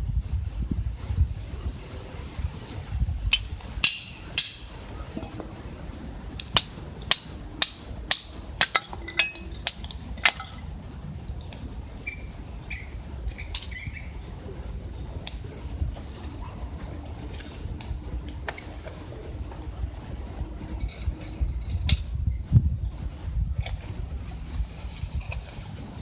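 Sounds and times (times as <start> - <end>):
wind rumble on microphone: 0.0 - 26.0
wood fire crackling and popping: 1.6 - 26.0
bird chirps: 12.0 - 14.2.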